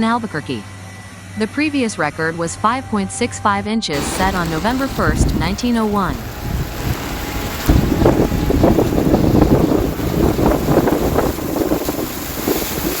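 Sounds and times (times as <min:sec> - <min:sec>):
floodwater churning and splashing: 0:04.0 - 0:13.0
wind buffeting microphone: 0:04.0 - 0:13.0.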